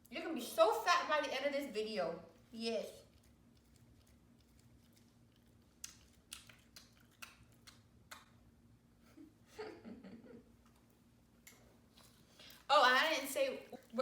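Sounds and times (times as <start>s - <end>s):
dog chewing a treat: 2.9s - 8.3s.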